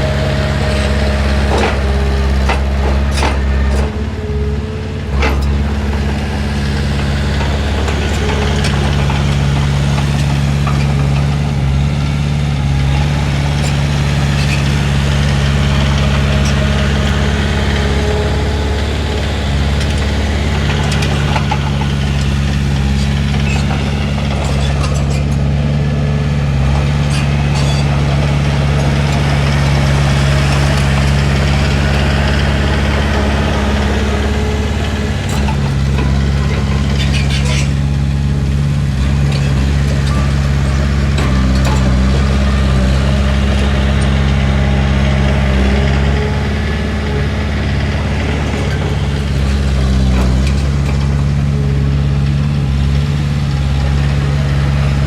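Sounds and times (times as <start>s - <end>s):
bulldozer diesel engine running: 0.0s - 55.0s
metallic clanks: 26.8s - 28.0s, 34.1s - 37.9s.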